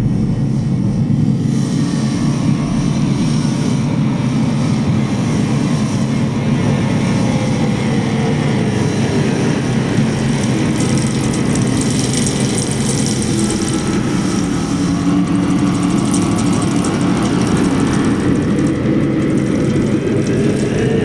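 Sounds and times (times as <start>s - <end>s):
metal spring droning: 7.0s - 21.0s.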